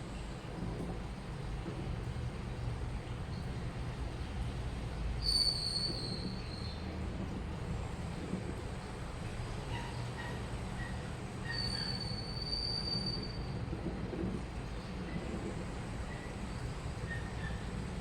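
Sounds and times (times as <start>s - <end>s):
washing machine rumbling: 0.0s - 18.0s
faint short squeaks: 5.2s - 6.8s, 9.7s - 13.6s.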